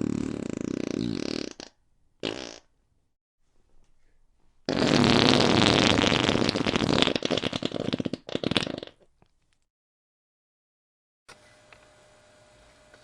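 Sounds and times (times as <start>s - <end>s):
fart sound effect: 0.0s - 2.7s, 4.7s - 9.1s.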